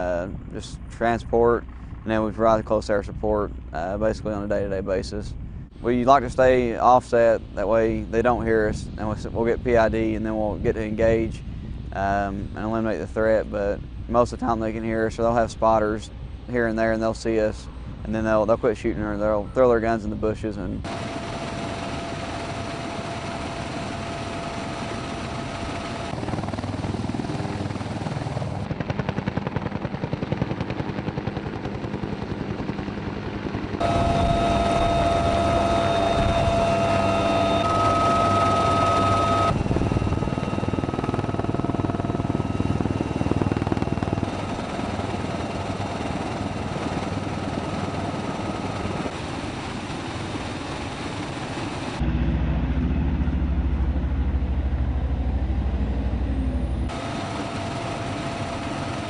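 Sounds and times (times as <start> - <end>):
turbine whine: 0.0 - 30.3, 31.2 - 59.0
helicopter rotor beating: 0.0 - 59.0.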